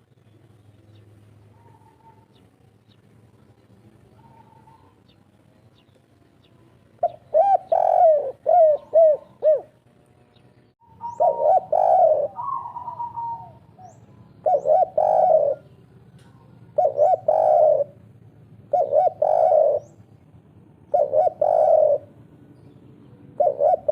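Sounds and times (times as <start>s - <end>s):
dove cooing: 1.5s - 2.4s, 4.0s - 5.1s, 7.0s - 9.8s, 10.8s - 22.5s, 23.2s - 23.9s.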